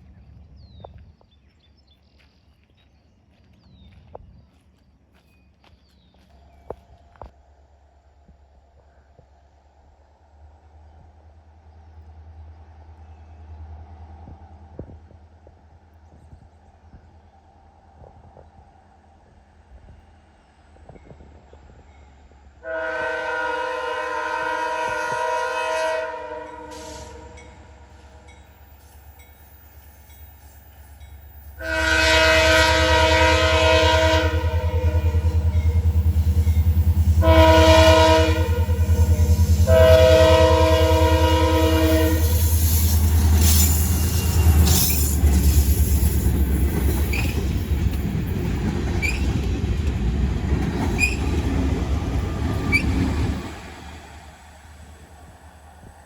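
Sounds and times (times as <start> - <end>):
deep rumble of passing train: 0.0 - 56.0
rail cars clattering: 12.1 - 56.0
locomotive air horn blasts: 22.6 - 28.2, 31.6 - 35.6, 37.2 - 42.6
wheels squealing: 42.2 - 48.1, 48.9 - 49.7, 50.7 - 53.5.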